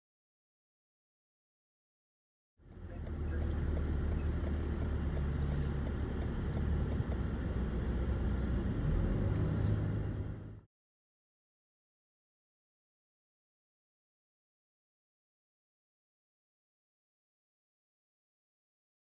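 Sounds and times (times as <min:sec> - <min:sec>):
moving vehicle rumble: 0:02.6 - 0:10.7.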